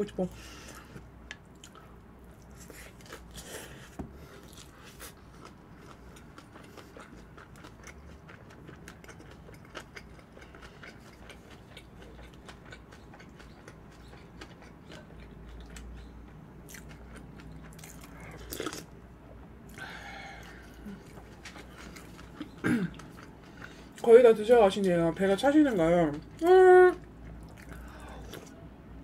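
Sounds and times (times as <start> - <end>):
chewing with crisp clicks: 0.7 - 3.2, 4.4 - 18.9, 19.7 - 24.1, 27.0 - 28.6.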